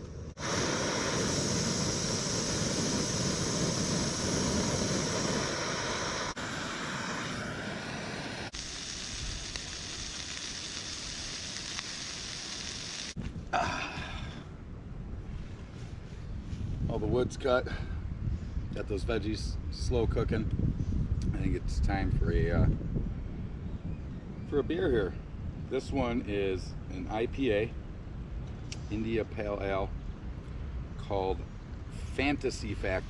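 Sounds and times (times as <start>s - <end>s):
vegetables sizzling in a pan: 8.5s - 13.2s.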